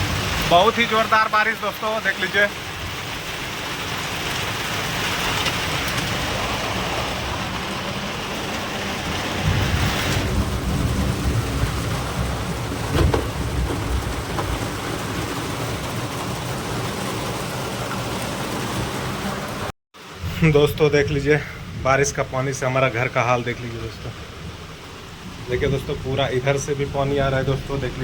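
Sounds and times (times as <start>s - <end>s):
heavy rain pouring: 0.0s - 28.0s
low thunder rumble: 2.5s - 19.6s, 20.2s - 28.0s.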